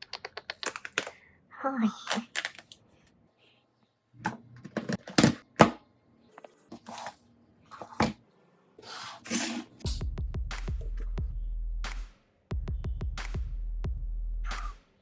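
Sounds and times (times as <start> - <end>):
sharp clicks and taps: 0.0 - 1.2.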